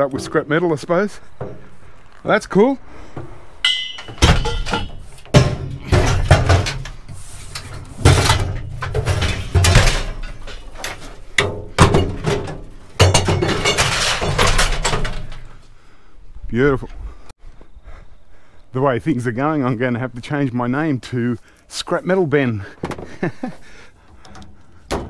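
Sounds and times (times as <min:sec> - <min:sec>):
scrap metal clanking: 0:00.0 - 0:15.7
metallic ring: 0:03.6 - 0:05.4.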